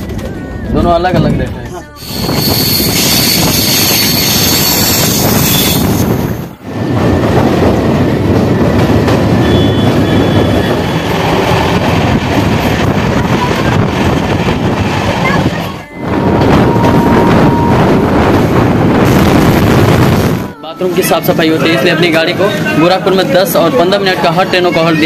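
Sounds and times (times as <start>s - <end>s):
train wheels rumbling on rail: 0.0s - 25.0s
high wheel squeal: 2.0s - 6.5s, 9.4s - 11.8s
rushing air: 2.0s - 22.8s.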